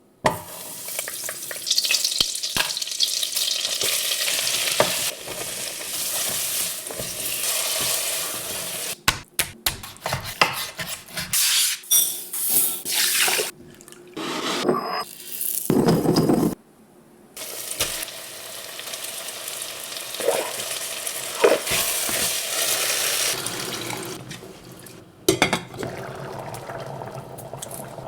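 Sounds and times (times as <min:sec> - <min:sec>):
food sizzling in a pot: 0:00.4 - 0:09.0, 0:17.4 - 0:24.2.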